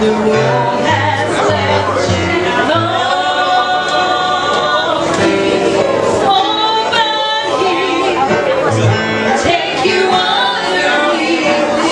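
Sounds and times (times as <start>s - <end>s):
backing instruments: 0.0s - 11.9s
gospel choir singing: 0.0s - 11.9s.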